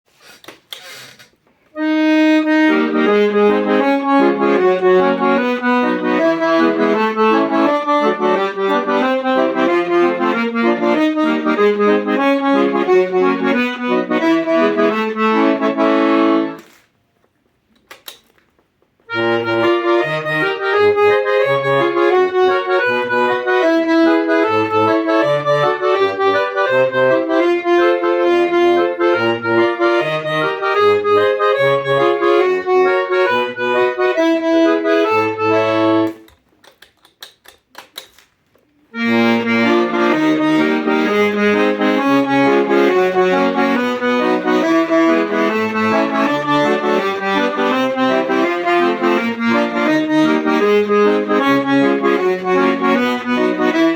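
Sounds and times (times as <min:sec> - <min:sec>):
accordion playing: 0:00.1 - 0:16.9, 0:19.0 - 0:36.8, 0:37.4 - 0:53.9
clicks: 0:00.2 - 0:01.8, 0:16.5 - 0:19.2, 0:36.0 - 0:39.1.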